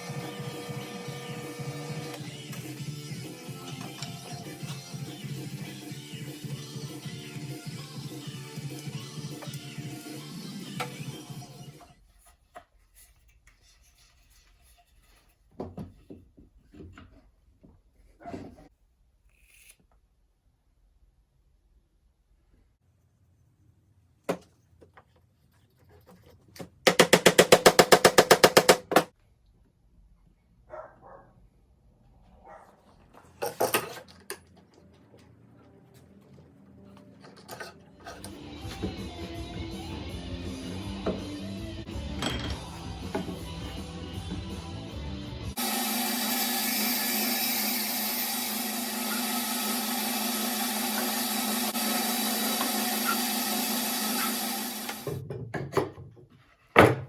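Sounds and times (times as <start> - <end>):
electric power tool running: 0.0 - 11.4, 45.5 - 55.1
workshop tool rapid knocking: 26.8 - 29.1.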